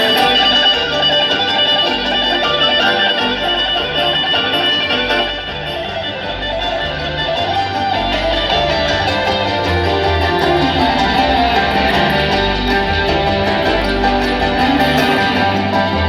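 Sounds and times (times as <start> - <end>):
acoustic guitar picking: 0.0 - 16.0
fiddle: 0.0 - 16.0
pulsing bass: 0.0 - 16.0.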